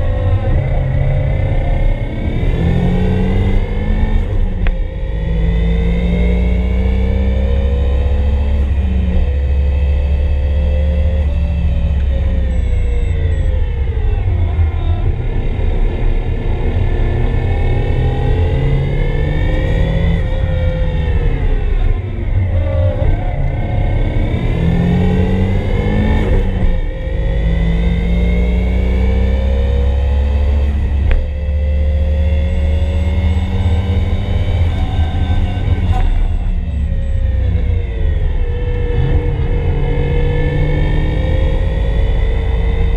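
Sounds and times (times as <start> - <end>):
car engine accelerating hard: 0.0 - 42.9.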